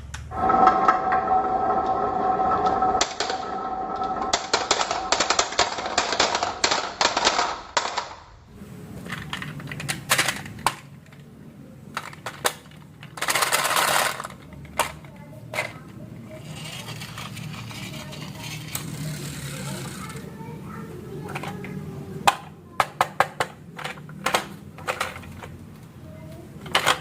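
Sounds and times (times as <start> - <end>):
marbles clattering down wooden run: 0.4 - 8.1.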